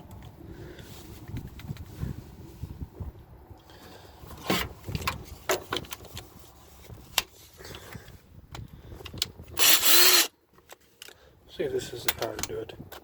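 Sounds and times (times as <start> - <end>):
metal tools clinking and knocking: 9.6 - 10.3.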